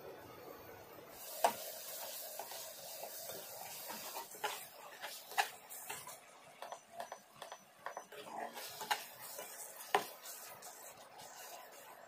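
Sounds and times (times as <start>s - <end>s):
curry sizzling in a pan: 1.1s - 12.0s
spoon stirring and knocking pan: 1.2s - 12.0s.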